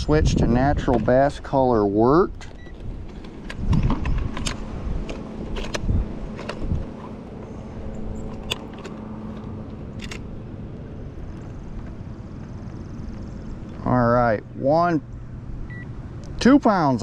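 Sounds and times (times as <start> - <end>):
wind rumble on microphone: 0.0 - 13.8.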